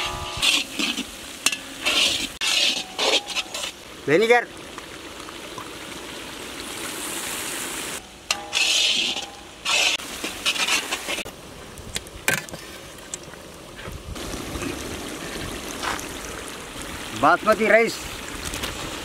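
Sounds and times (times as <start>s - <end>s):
metal spatula scraping pan: 0.0s - 3.8s, 8.3s - 11.2s
food sizzling in a pan: 0.0s - 3.9s, 6.9s - 11.3s.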